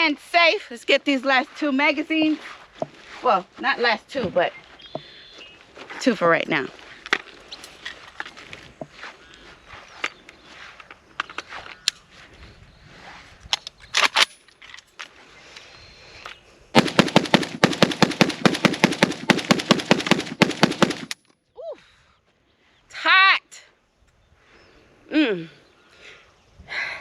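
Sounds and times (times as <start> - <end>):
rifle firing rapid shots: 16.8 - 21.2.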